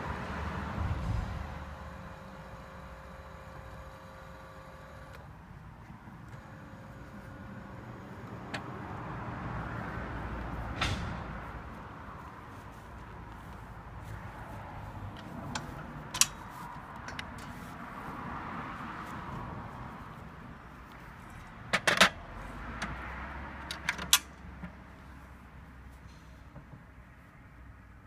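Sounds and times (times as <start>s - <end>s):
steady background noise: 0.0s - 28.0s
metallic clanks and clicks: 15.2s - 16.4s, 17.0s - 17.6s, 23.6s - 24.4s.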